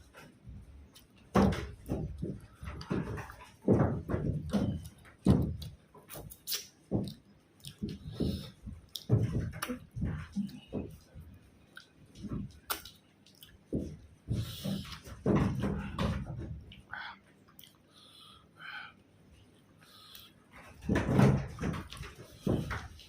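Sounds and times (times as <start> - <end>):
chewing and mouth noises: 6.3 - 8.2, 12.7 - 13.7, 17.5 - 17.9.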